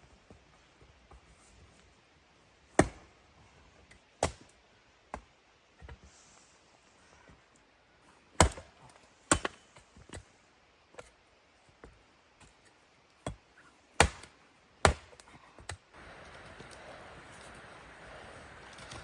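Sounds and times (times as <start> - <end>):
wood chopping strikes: 2.8 - 3.1, 4.2 - 4.5, 8.4 - 8.7, 9.3 - 10.2, 14.0 - 15.8
steady hiss: 16.0 - 19.0.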